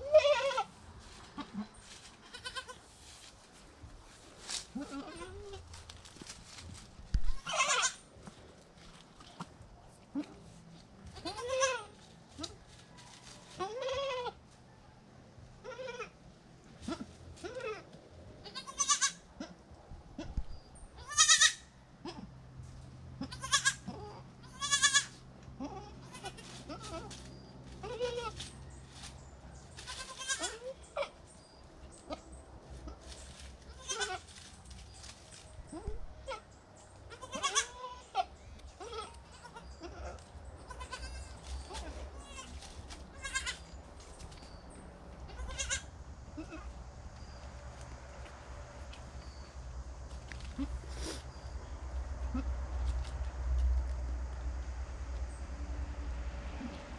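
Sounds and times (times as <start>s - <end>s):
goats bleating: 1.4s - 2.8s, 4.8s - 5.7s, 7.3s - 8.0s, 11.1s - 12.5s, 18.4s - 19.2s, 21.0s - 22.3s, 23.2s - 27.2s, 27.8s - 28.4s, 29.9s - 31.1s, 33.7s - 34.2s, 37.1s - 43.7s, 45.3s - 46.8s.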